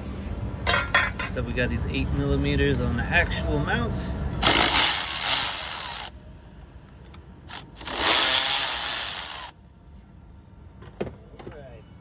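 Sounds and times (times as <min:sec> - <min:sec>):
electric ratchet spinning: 0:04.4 - 0:06.1, 0:07.5 - 0:09.6.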